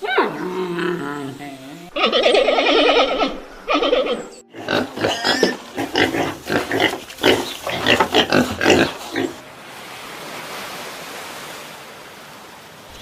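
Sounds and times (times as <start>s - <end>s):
long rapidly pulsing animal call: 1.9s - 6.2s.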